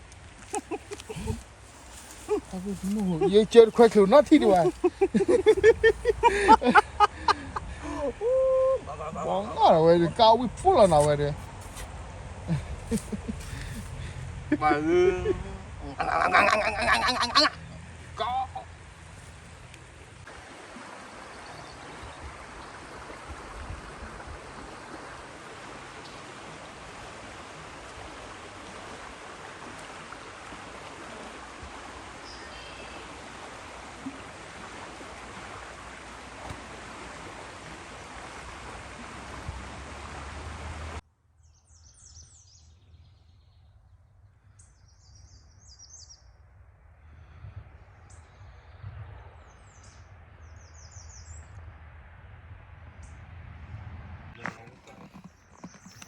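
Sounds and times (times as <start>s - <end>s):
small birds chirping: 0.5s - 6.4s, 54.4s - 56.0s.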